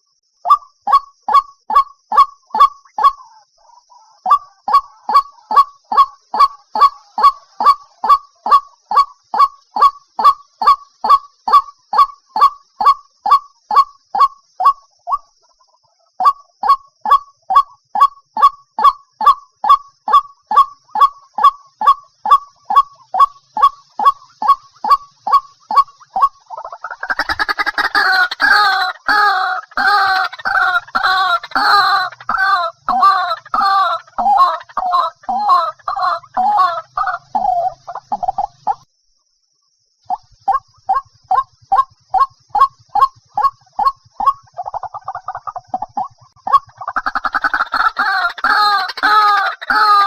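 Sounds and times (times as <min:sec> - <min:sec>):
waterhen kwak calls: 0:20.6 - 0:38.8.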